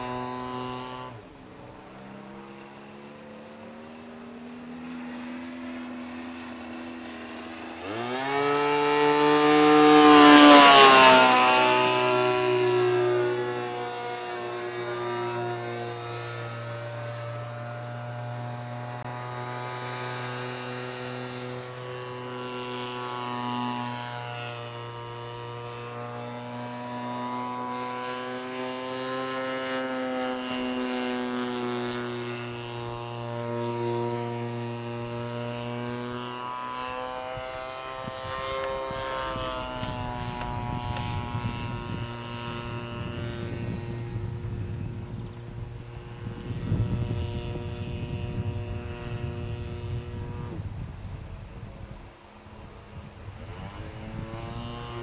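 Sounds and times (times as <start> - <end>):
model plane engine drone: 0.0 - 55.0
steady low hum: 0.0 - 55.0
wind on microphone: 29.7 - 55.0.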